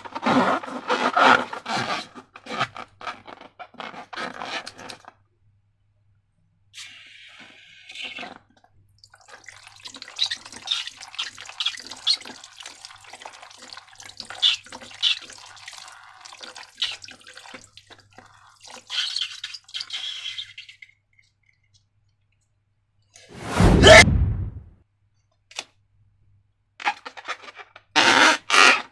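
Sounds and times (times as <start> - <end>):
sudden loud noise: 23.4 - 24.7.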